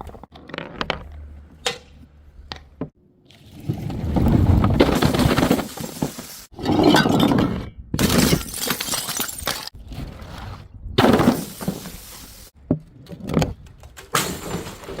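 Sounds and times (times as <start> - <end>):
glass bottles smashing: 8.0 - 9.8, 11.0 - 12.4.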